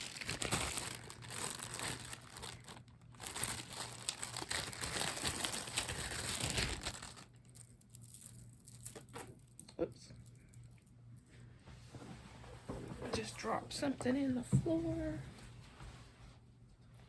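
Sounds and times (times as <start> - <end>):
plastic bags crinkling: 0.0 - 9.3.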